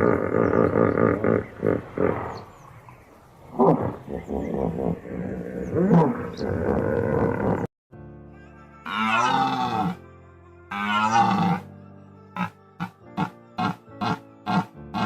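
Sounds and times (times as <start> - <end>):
large animal low calls: 0.0 - 7.7.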